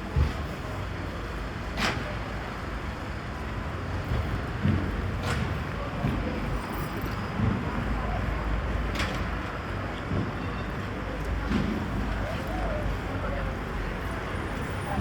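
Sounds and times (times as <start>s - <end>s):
low rumble of traffic: 0.0s - 15.0s
passers-by talking: 5.4s - 15.0s.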